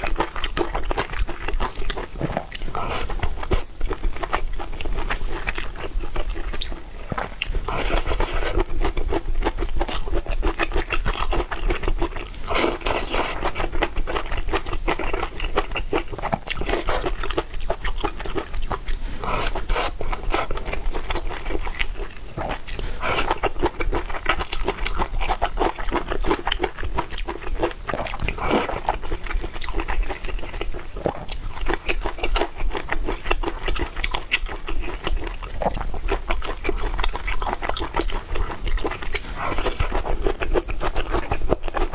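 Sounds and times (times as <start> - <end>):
chewing and crunching: 0.0 - 41.9.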